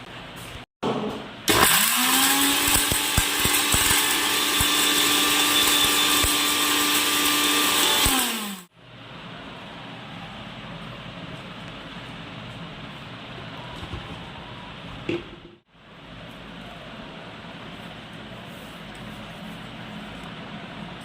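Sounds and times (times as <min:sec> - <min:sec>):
mixer grinder motor running: 0:01.5 - 0:08.7.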